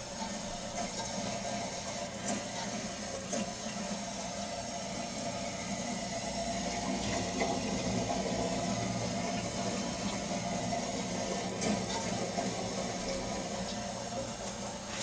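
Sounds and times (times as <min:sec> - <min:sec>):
refrigerator humming: 0:00.0 - 0:15.0.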